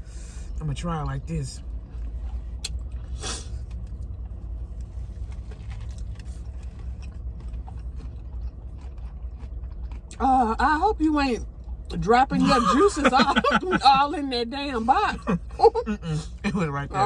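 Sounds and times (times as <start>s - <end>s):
steady low hum: 0.0s - 17.0s
person crunching fried chicken: 1.8s - 10.2s.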